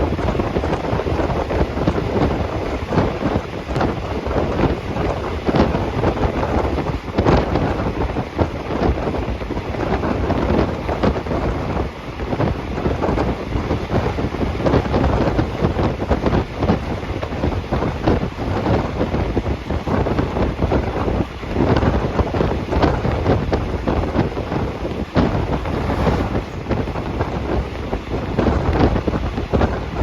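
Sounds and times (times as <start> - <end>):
wind buffeting microphone: 0.0 - 30.0
train rushing noise: 22.1 - 30.0.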